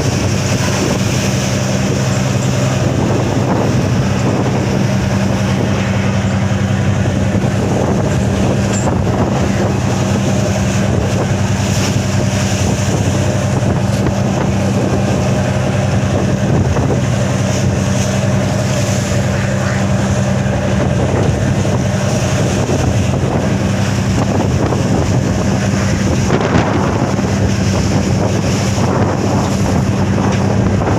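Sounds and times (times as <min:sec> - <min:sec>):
boat engine droning: 0:00.0 - 0:30.9
wind buffeting microphone: 0:00.0 - 0:30.9.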